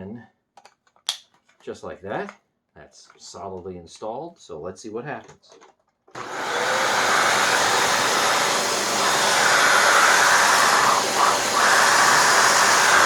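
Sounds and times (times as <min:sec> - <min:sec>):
vacuum cleaner running: 0:06.2 - 0:13.0.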